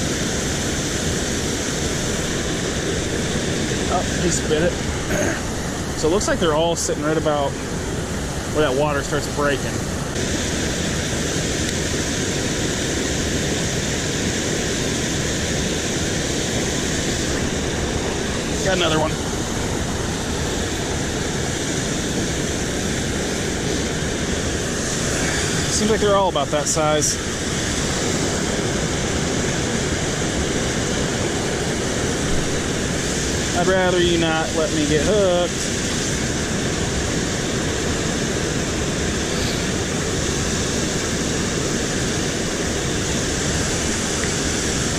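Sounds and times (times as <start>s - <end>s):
water rushing over spillway: 0.0s - 44.9s.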